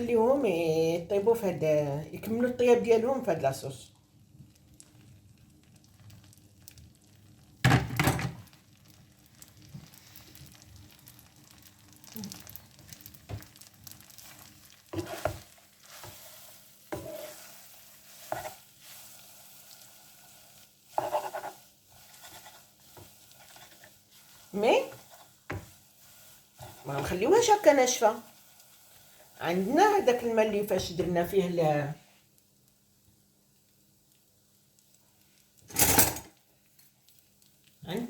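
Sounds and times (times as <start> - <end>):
faint sizzle: 0.0 - 38.0
utensil scraping a pan: 14.2 - 29.7.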